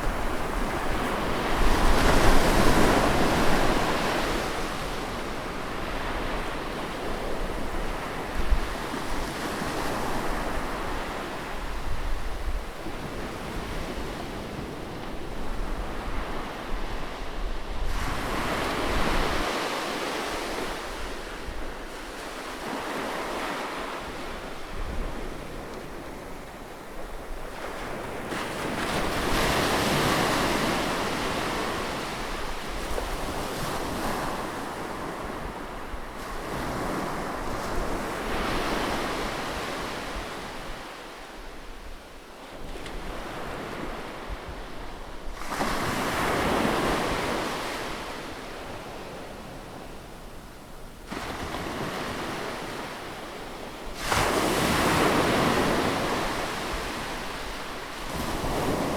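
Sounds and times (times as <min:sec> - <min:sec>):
sea waves breaking on shore: 0:51.0 - 0:58.9.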